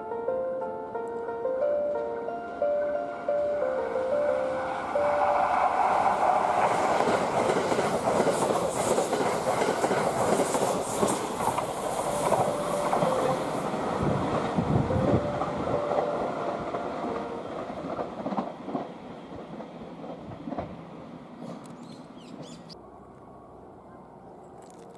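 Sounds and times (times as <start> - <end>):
train wheels clattering: 4.8 - 22.6.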